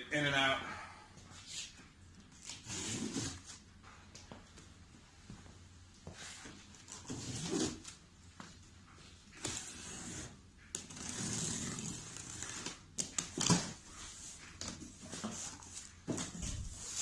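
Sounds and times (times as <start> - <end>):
cardboard rustling and scraping: 9.3 - 17.0.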